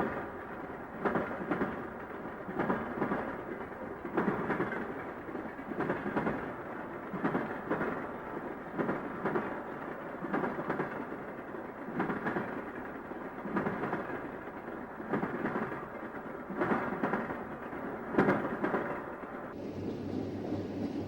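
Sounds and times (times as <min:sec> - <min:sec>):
freight train rumbling: 0:00.0 - 0:21.0
train wheels clacking: 0:00.0 - 0:21.0.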